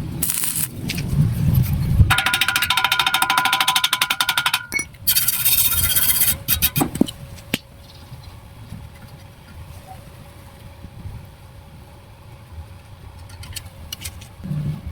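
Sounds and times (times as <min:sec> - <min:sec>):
welding arc crackling: 0:00.0 - 0:02.8.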